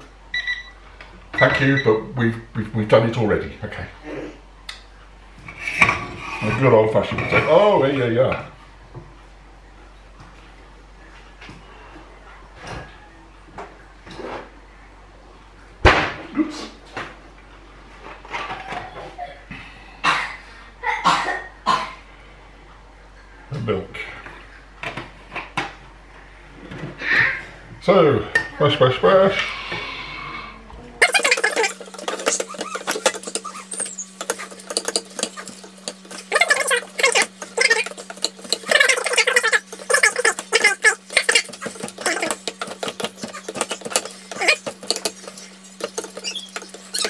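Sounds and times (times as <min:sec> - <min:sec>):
utensil scraping a saucepan: 0:05.5 - 0:07.6, 0:31.0 - 0:47.0.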